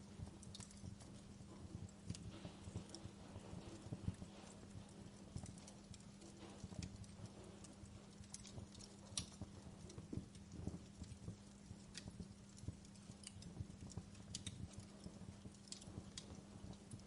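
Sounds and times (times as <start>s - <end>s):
low steady hum: 0.0s - 17.0s
wood fire crackling: 0.0s - 17.0s.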